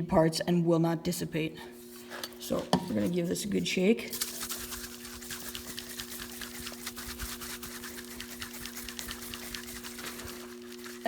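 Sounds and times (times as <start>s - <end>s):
aerosol can rattling: 4.1s - 11.0s.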